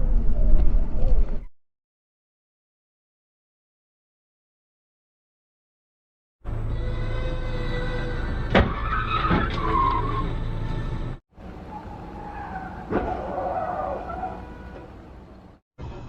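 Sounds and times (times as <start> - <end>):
car road noise: 6.4 - 16.0
tyres skidding: 6.8 - 16.0.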